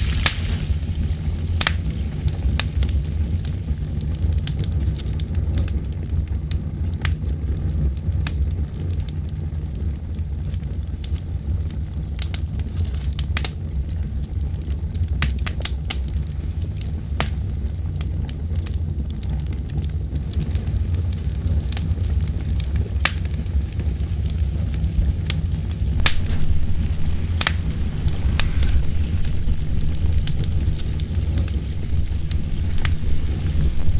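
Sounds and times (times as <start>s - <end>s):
low rumble of wind: 25.8s - 33.9s
campfire crackling: 26.0s - 33.9s.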